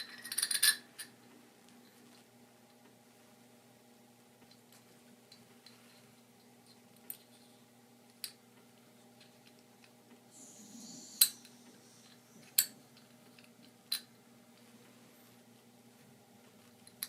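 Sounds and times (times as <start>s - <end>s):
brief hiss: 10.4s - 12.7s.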